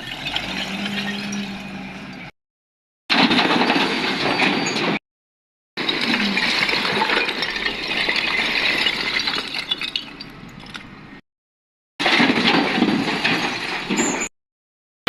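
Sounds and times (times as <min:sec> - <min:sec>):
rubble and stones clattering: 0:03.1 - 0:05.0, 0:05.8 - 0:11.1, 0:12.0 - 0:14.3.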